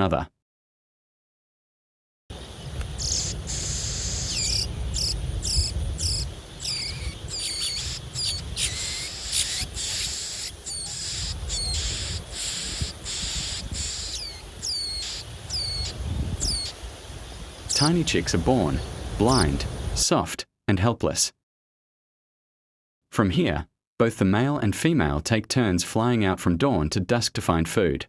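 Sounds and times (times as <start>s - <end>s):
insect drone: 2.3s - 20.0s
small bird chirping: 2.5s - 18.0s.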